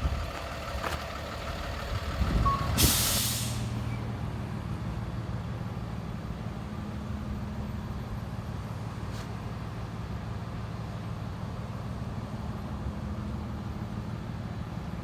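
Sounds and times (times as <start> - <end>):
truck engine idling: 0.0 - 6.6
short beep: 2.4 - 2.9
air brakes hissing: 2.5 - 4.1.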